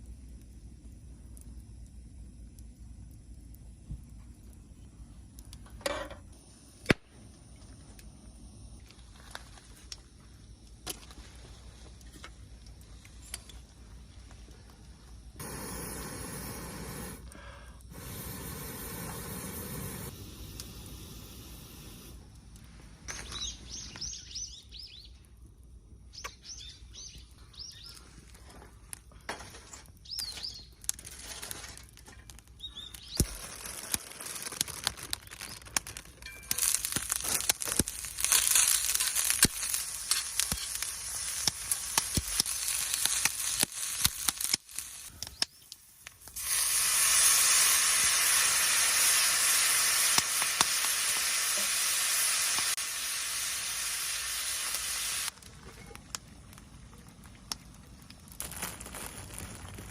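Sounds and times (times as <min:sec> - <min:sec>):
food sizzling in a hot pan: 0:36.3 - 0:45.1, 0:46.3 - 0:55.4.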